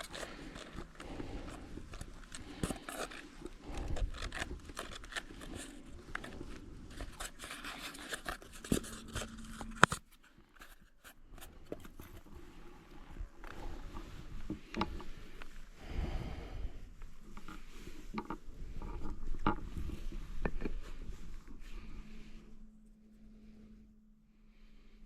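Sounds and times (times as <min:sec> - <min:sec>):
fishing tackle handling: 0:00.0 - 0:12.3.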